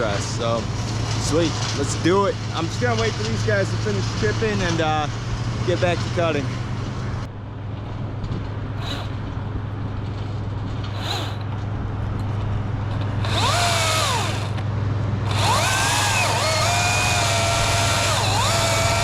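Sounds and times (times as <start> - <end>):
wood chipper droning: 0.0 - 19.0
chainsaw revving: 8.8 - 9.3, 10.8 - 11.5, 13.0 - 14.6, 15.2 - 19.0.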